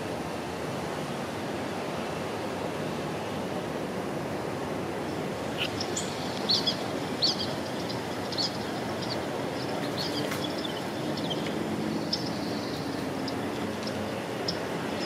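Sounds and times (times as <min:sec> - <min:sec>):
outdoor background hiss: 0:00.0 - 0:15.0
small birds chirping: 0:05.4 - 0:15.0.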